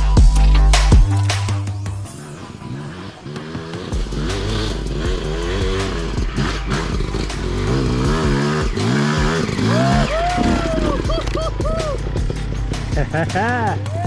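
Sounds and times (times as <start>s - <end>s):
dirt bike engine revving: 0.8s - 14.0s.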